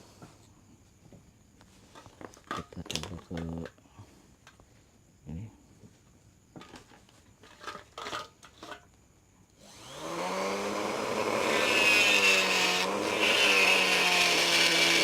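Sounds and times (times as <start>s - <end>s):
mini grinder whining: 9.6s - 15.0s.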